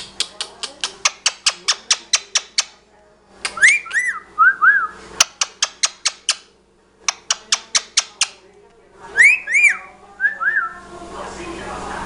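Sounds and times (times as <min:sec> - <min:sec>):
bird whistling: 0:03.6 - 0:05.0, 0:09.2 - 0:10.8.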